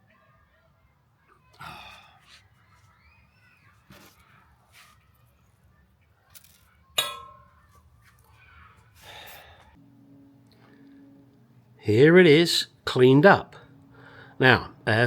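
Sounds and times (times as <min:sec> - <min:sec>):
faint steady hum: 0:09.1 - 0:15.0.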